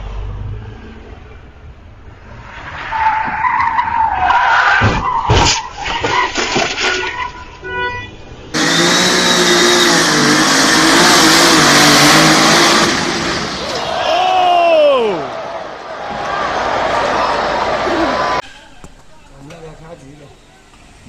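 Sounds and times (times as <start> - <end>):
car tyre squeal: 2.5 - 15.2
heavy impacts: 18.4 - 20.0.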